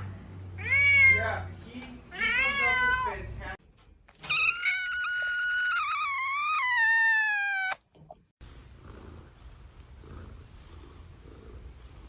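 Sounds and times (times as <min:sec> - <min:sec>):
cat meowing: 0:04.3 - 0:07.8
cat purring: 0:08.5 - 0:12.0.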